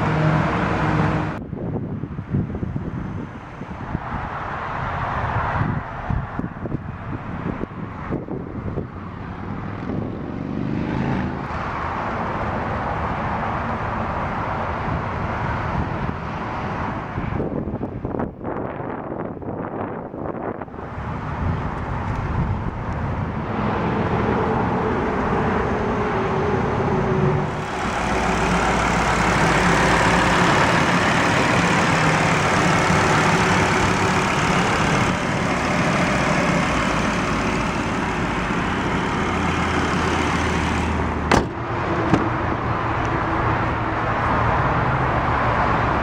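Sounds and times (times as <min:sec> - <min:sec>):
road traffic: 0:00.0 - 0:46.0.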